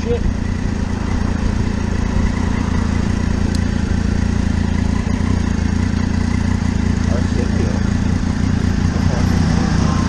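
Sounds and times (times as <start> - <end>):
motorcycle engine running steadily: 0.0 - 10.0.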